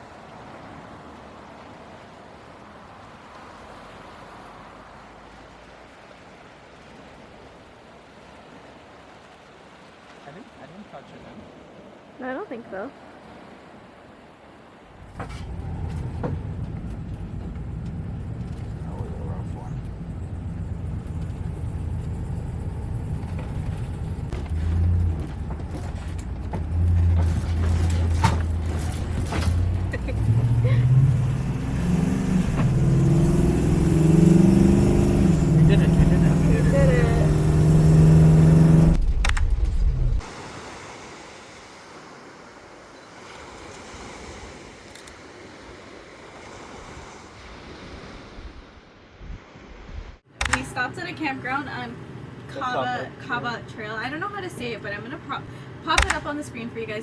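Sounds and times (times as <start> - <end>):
vehicle engine and road rumble: 0.0 - 10.3, 14.1 - 40.3
ocean surf washing on shore: 0.0 - 54.8.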